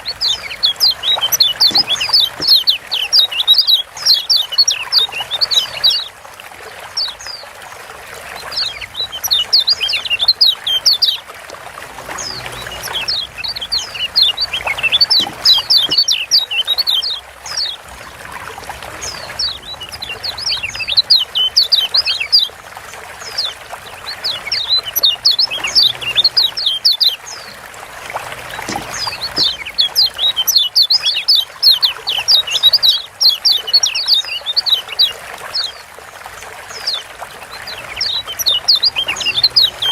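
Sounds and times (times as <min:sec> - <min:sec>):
bird giving sharp chirps: 0:00.0 - 0:03.8, 0:12.6 - 0:17.1, 0:28.4 - 0:31.4
water trickling: 0:00.0 - 0:39.9.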